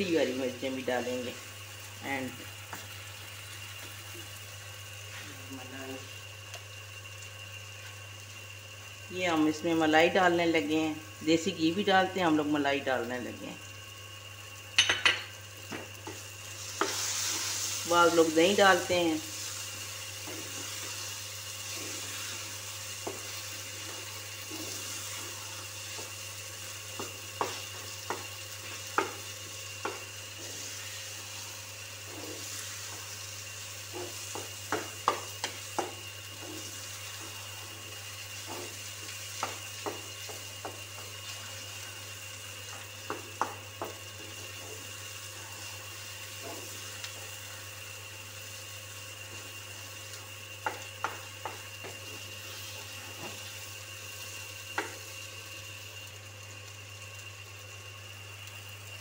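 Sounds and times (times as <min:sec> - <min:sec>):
food sizzling in a frying pan: 0:00.0 - 0:59.0
spatula clacking on pan: 0:43.0 - 0:44.0, 0:50.6 - 0:52.0.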